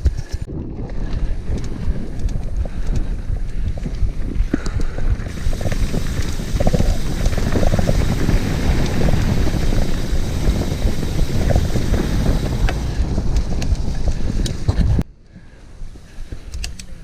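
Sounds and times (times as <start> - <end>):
wind buffeting microphone: 0.0 - 15.1
bike knocks and rattles: 4.2 - 15.0.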